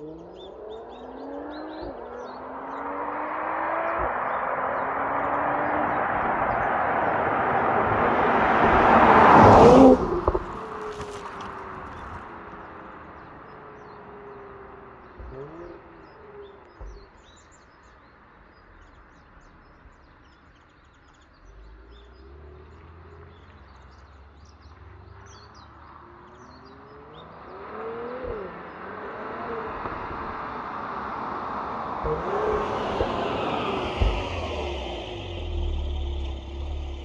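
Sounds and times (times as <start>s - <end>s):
passing traffic: 0.0s - 37.0s
small birds chirping: 0.0s - 37.0s
low engine rumble: 3.8s - 15.4s, 27.6s - 37.0s.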